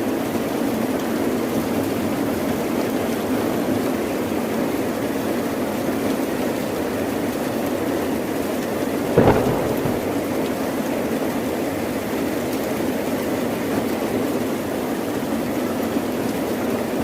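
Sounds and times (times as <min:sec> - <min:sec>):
heavy rain: 0:09.0 - 0:10.7
thunderclap: 0:09.2 - 0:10.6.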